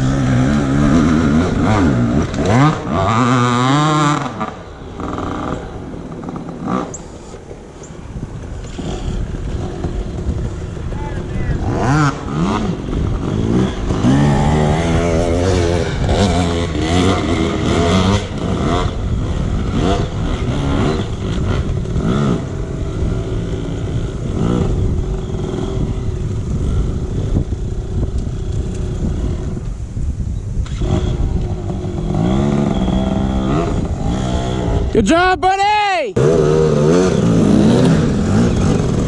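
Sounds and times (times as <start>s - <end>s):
dirt bike engines revving: 0.0s - 39.0s.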